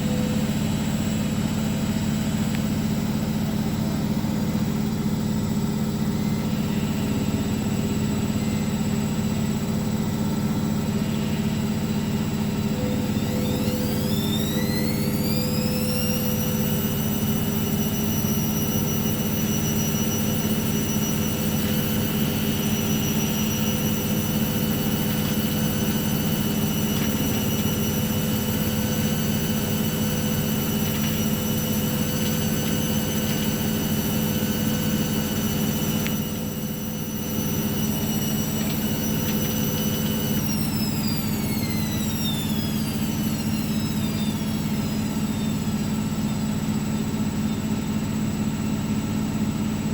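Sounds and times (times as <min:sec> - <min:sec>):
motor whine of spinning drum: 0:00.0 - 0:49.9
washing machine humming: 0:00.0 - 0:49.9.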